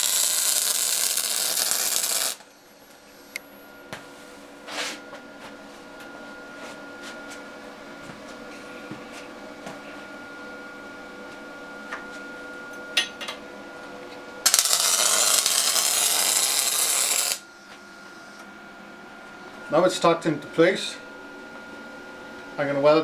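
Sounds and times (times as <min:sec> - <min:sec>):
welding arc crackling: 0:00.0 - 0:02.4, 0:14.4 - 0:17.4
electrical hum: 0:00.0 - 0:23.0.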